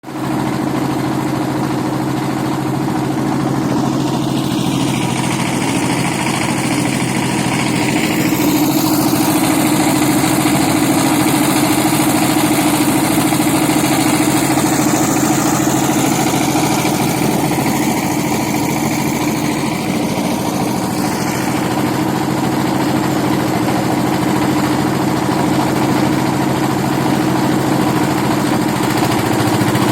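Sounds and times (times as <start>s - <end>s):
boat engine running: 0.0s - 29.9s.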